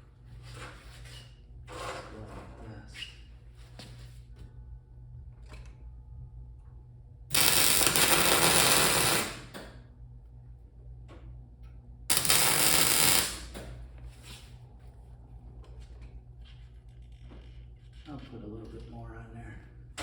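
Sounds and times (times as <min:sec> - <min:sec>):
steady low hum: 0:00.0 - 0:20.0
welding arc crackling: 0:07.3 - 0:09.6, 0:12.1 - 0:13.6.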